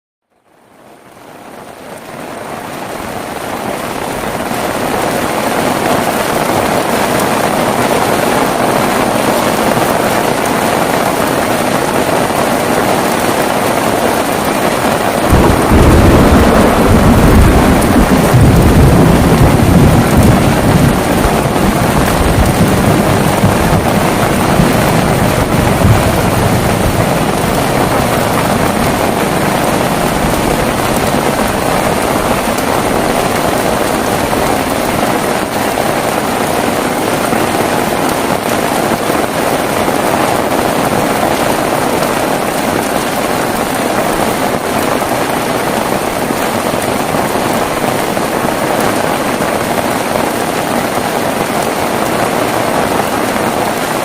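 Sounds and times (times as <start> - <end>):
heavy rain: 0.3 - 54.0
loud thunder roll: 14.8 - 38.4.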